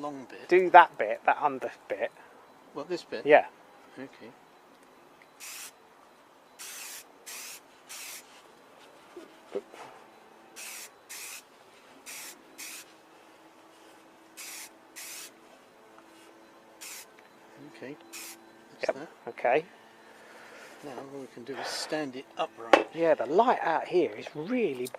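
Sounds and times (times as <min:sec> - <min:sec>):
aerosol can spraying hisses: 0:05.4 - 0:05.7, 0:06.6 - 0:08.3, 0:10.6 - 0:11.4, 0:12.0 - 0:12.9, 0:14.4 - 0:15.3, 0:16.8 - 0:17.1, 0:18.1 - 0:18.4.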